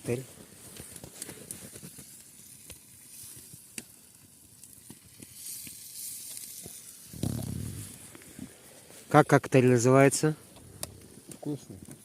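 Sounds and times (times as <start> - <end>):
sizzling hiss with crackles: 0.0 - 12.0
short low rumble: 7.1 - 8.0.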